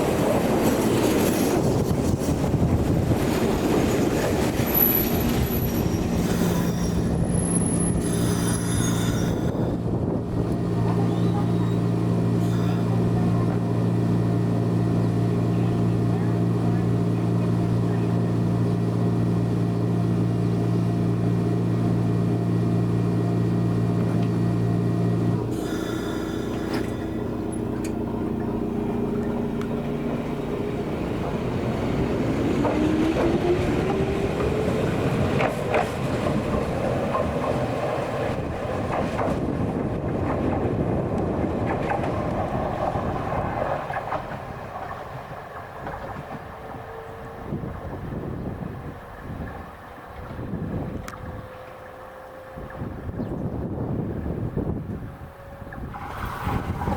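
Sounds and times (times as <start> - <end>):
electric train motor whine: 4.5 - 56.9
wheels clicking over rail joints: 25.5 - 46.9.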